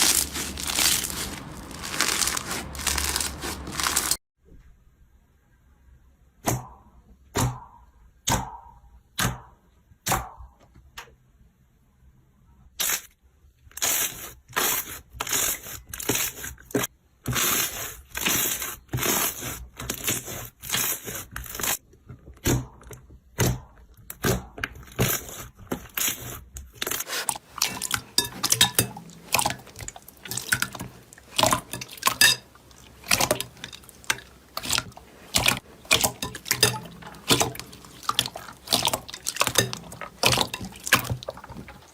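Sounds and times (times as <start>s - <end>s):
slime squelching: 0.0s - 4.2s, 24.2s - 41.9s.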